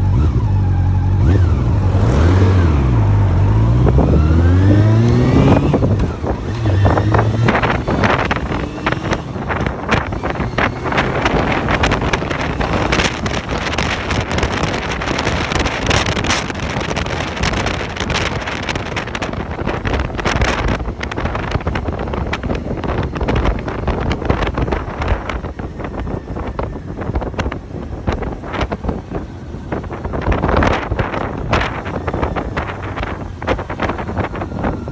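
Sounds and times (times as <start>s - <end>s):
motorcycle engine revving: 0.0s - 34.9s
wind buffeting microphone: 0.0s - 34.9s.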